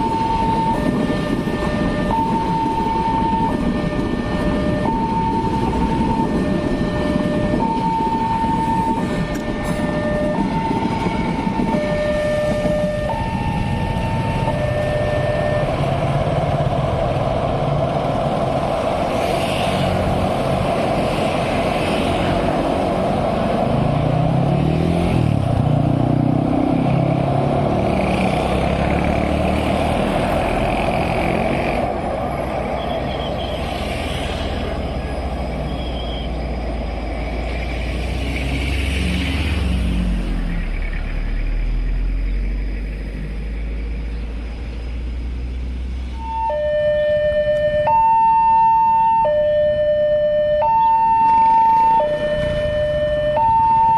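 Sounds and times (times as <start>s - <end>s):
road traffic passing: 0.0s - 53.9s
heavy vehicle engine revving: 9.8s - 46.2s.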